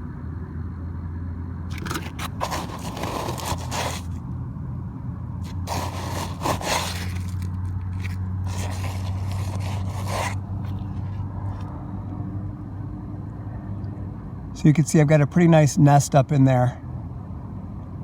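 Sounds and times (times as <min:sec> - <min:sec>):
steel wool scratching and rustling: 0:01.7 - 0:04.2, 0:05.4 - 0:11.2.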